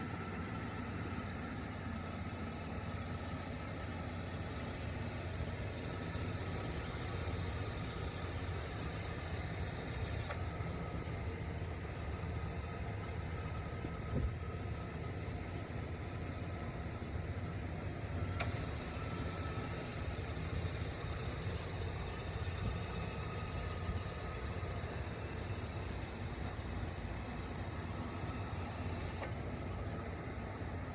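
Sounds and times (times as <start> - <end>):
pickup engine idling: 0.0 - 30.9
brief clicks: 18.3 - 18.7.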